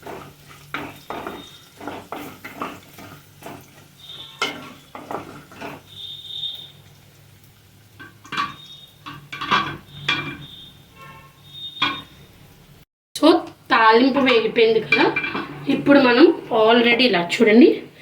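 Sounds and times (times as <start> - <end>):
spoon clattering against a pan: 0.0 - 6.1, 8.0 - 10.6, 11.8 - 12.1, 14.2 - 16.2
spices frying in oil: 0.0 - 17.8.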